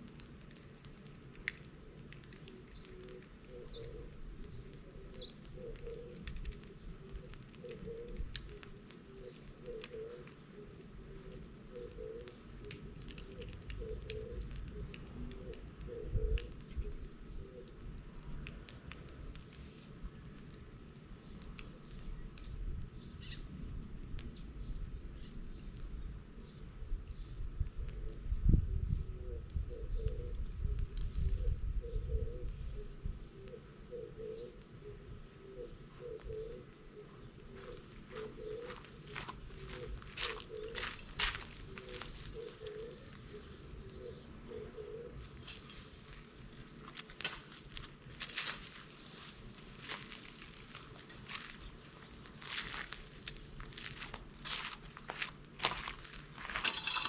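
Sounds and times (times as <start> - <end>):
fire popping: 0.0 - 33.8, 34.4 - 44.3, 45.3 - 57.0
bonfire crackling: 0.0 - 57.0
bird chirping: 2.3 - 17.7, 21.2 - 23.5, 31.4 - 45.3.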